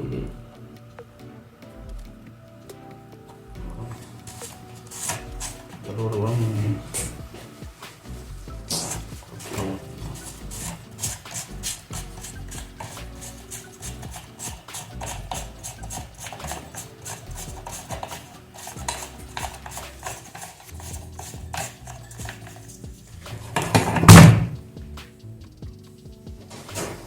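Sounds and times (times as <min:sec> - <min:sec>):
hand tools clinking on metal: 0:08.7 - 0:24.4
metal clatter: 0:08.7 - 0:24.6.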